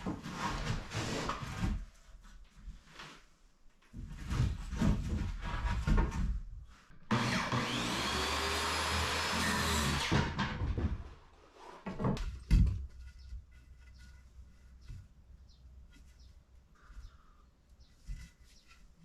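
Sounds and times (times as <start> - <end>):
wooden knocks and clatter: 3.9 - 6.5, 10.0 - 17.1
power tool motor running: 7.1 - 10.1.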